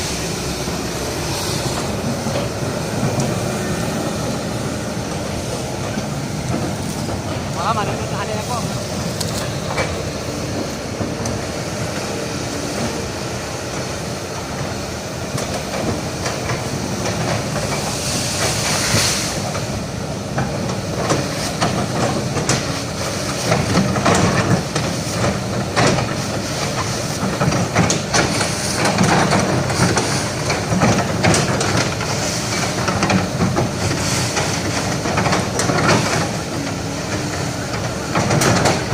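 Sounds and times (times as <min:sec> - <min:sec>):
diesel engine running: 0:00.0 - 0:38.9
metal clanks and knocks: 0:20.4 - 0:38.9.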